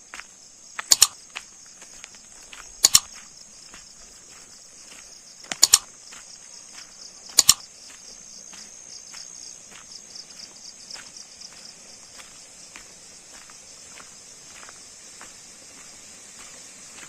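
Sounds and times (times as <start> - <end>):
insects chirring: 0.0 - 17.0
loud sharp double clicks: 0.8 - 1.2, 2.8 - 3.2, 5.5 - 5.9, 7.3 - 7.7.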